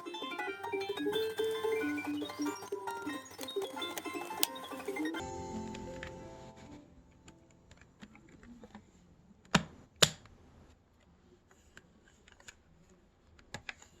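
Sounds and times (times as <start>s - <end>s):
light clicks and handling noises: 10.9s - 14.0s.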